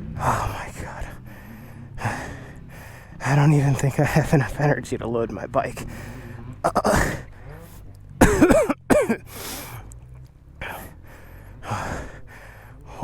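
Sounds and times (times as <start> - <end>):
man breathing hard: 1.1 - 3.2, 5.8 - 7.8, 9.2 - 10.0, 10.6 - 13.0
man coughing: 6.7 - 7.3, 8.2 - 9.3
man clearing throat: 6.7 - 7.6, 8.2 - 9.3
man groaning: 6.7 - 7.6.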